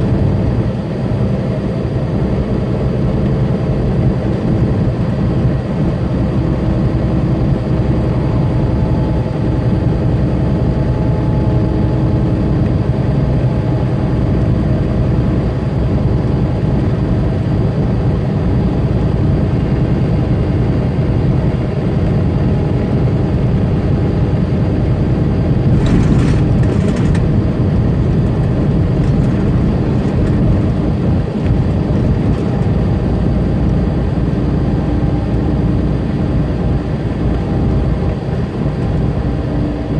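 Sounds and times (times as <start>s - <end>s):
truck engine drone: 0.0s - 39.9s
road noise: 13.5s - 39.9s.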